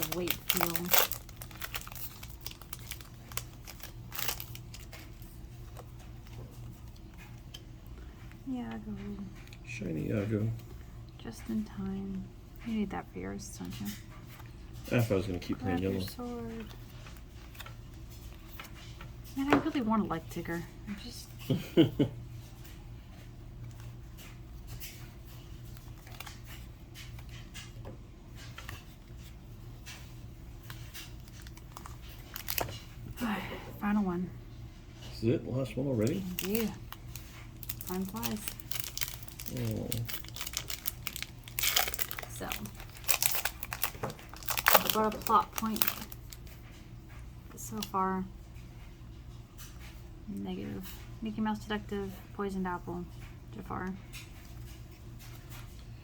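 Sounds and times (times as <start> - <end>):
cards and foil wrapper rustling: 0.0 - 6.7, 24.2 - 27.7, 28.4 - 33.3, 35.6 - 46.6
low steady hum: 0.0 - 56.0.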